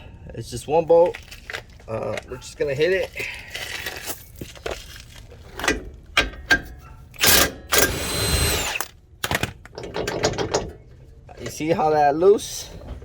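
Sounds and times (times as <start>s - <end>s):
impact driver bursts: 7.2s - 8.9s
tool handling clicks and knocks: 8.8s - 11.8s.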